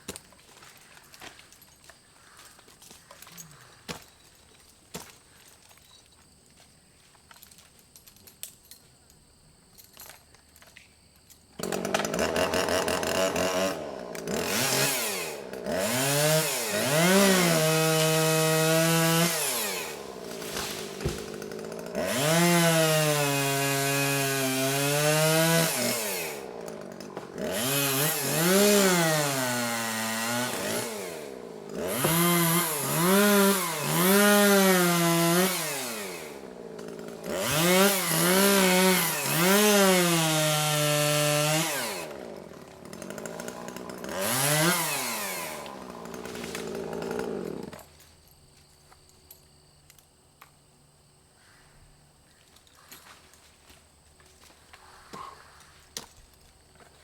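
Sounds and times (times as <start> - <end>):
chainsaw revving: 11.6 - 47.9.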